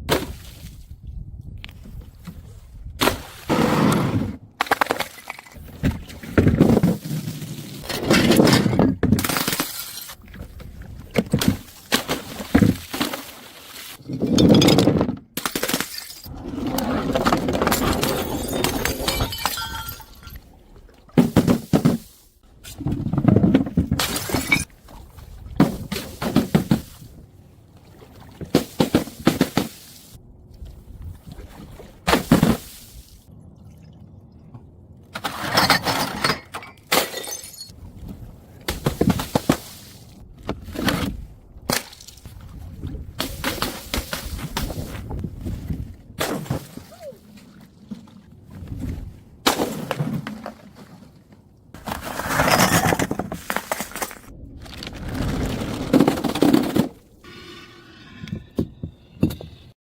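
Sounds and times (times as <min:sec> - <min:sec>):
glass bottles smashing on stairs: 0:17.7 - 0:20.4, 0:35.5 - 0:37.7.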